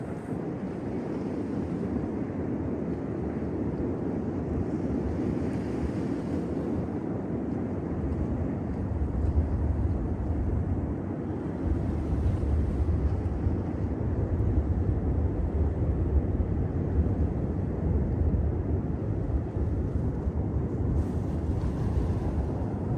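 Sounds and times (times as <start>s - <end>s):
low city rumble: 7.0s - 22.9s.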